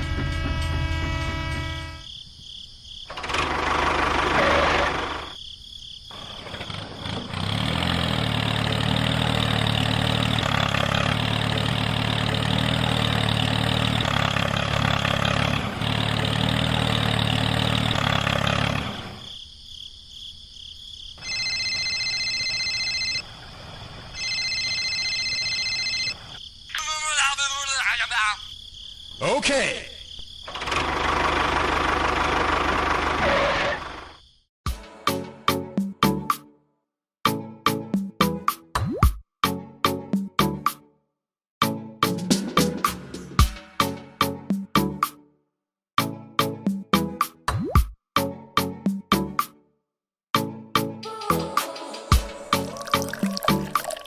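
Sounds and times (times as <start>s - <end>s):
tractor engine running: 0.0s - 2.0s, 3.1s - 5.4s, 6.1s - 19.3s, 30.5s - 34.1s.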